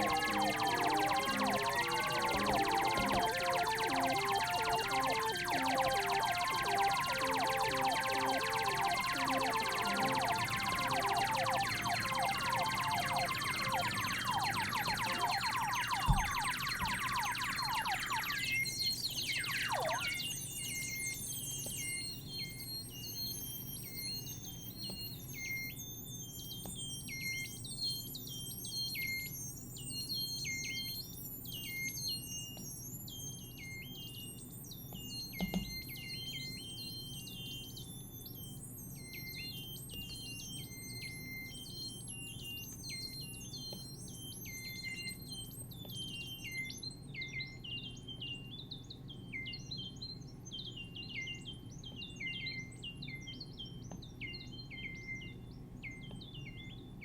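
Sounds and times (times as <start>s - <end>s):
synthesizer high chirps: 0.0s - 21.2s.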